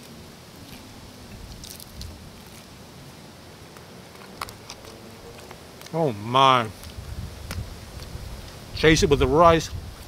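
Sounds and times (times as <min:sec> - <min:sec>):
person chewing fried chicken: 0:00.0 - 0:02.8.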